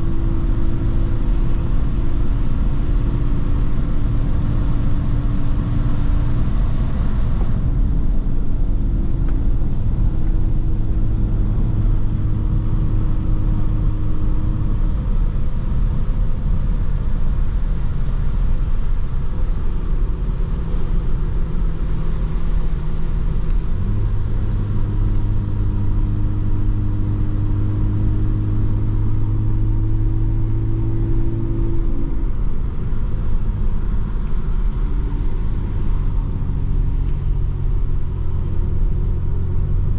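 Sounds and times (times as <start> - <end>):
car engine drone: 0.0 - 39.9
road rumble: 0.0 - 39.9.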